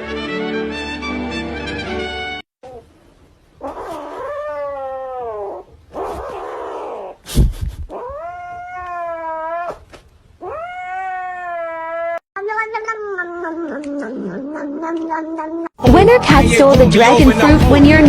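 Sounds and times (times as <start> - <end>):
cat yowling: 3.6 - 7.2, 7.9 - 15.8.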